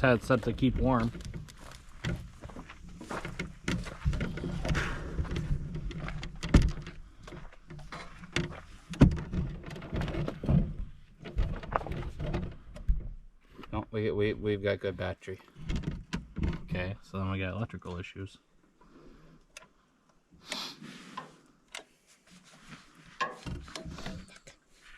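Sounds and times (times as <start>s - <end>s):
objects knocking and clunking: 0.0s - 13.7s, 15.5s - 17.0s, 23.0s - 24.6s.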